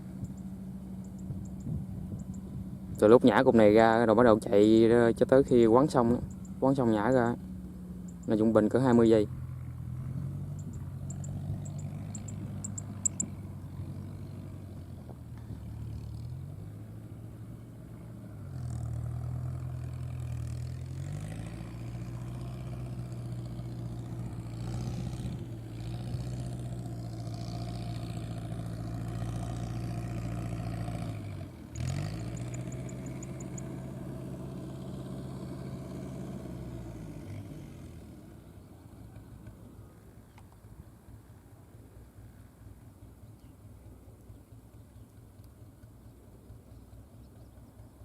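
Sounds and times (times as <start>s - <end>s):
tractor diesel engine running: 0.0s - 48.0s
rapid high-pitched ticks: 0.2s - 2.4s, 6.2s - 6.6s, 8.1s - 8.4s, 10.5s - 13.3s, 32.4s - 33.7s.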